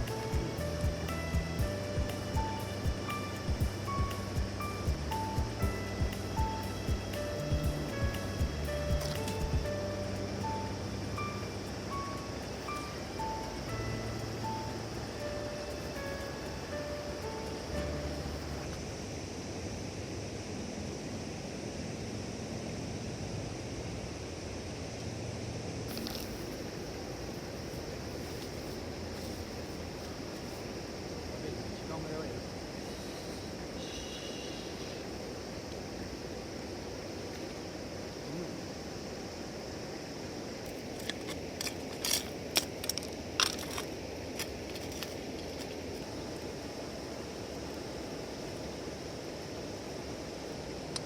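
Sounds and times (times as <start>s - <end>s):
rushing outdoor background noise: 0.0s - 51.0s
crinkling and clicking handling: 41.0s - 45.8s.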